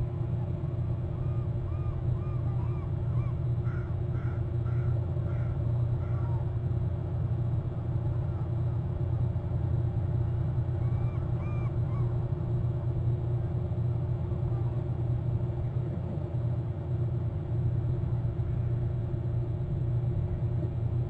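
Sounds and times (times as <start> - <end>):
steady low rumble: 0.0 - 21.0
birds calling: 1.1 - 6.5.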